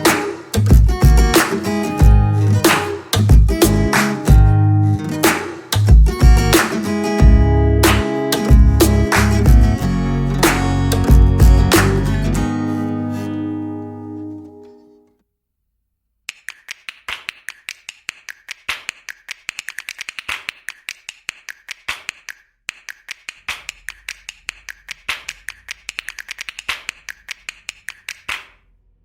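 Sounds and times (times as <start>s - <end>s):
rapid sharp clicking: 16.3s - 28.6s.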